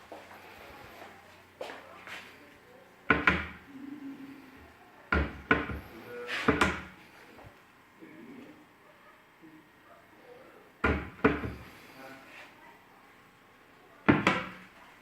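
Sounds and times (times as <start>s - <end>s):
cabinet doors knocking shut: 3.1s - 3.6s, 5.1s - 5.8s, 6.4s - 6.9s, 10.8s - 11.7s, 14.1s - 14.6s.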